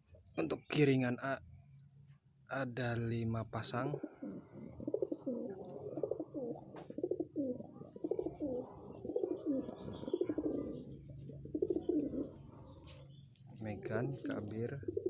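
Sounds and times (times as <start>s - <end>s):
pigeons cooing: 3.7s - 15.0s.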